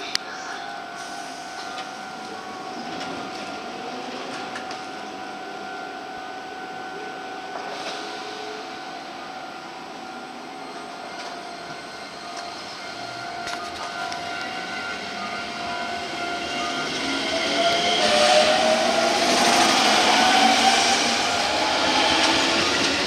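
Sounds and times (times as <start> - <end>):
electric train running: 0.0 - 23.0
motor whine rising in pitch: 12.2 - 23.0.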